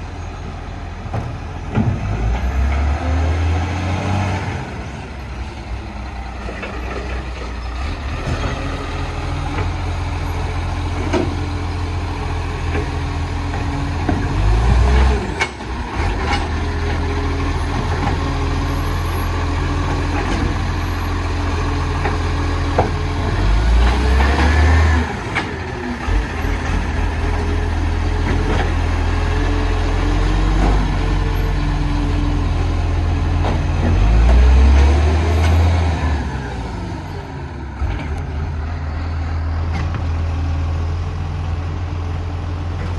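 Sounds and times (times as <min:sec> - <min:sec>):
garbage truck diesel engine: 0:00.0 - 0:42.9.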